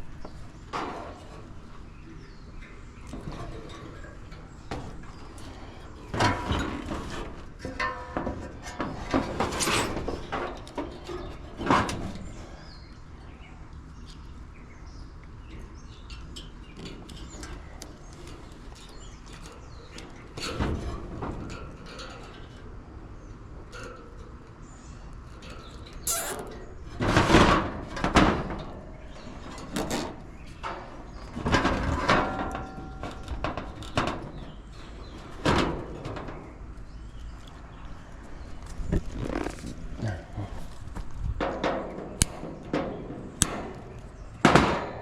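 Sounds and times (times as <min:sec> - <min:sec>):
knocks and clatters on metal: 0:03.1 - 0:12.3, 0:26.9 - 0:36.7, 0:41.0 - 0:45.0.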